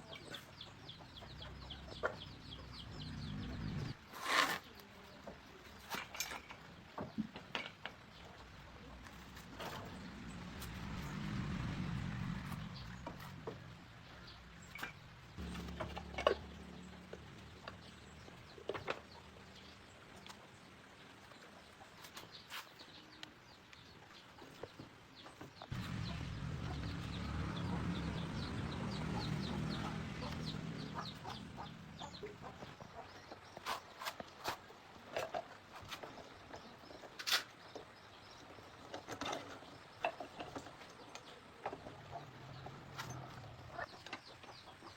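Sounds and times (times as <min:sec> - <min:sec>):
chickens clucking: 0:00.0 - 0:04.0, 0:25.7 - 0:34.6.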